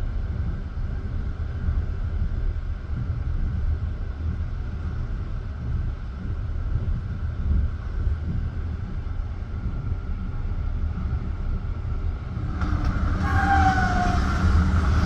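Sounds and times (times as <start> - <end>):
train wheels rumbling on rails: 0.1 - 15.0
high falling squeal: 12.9 - 15.0.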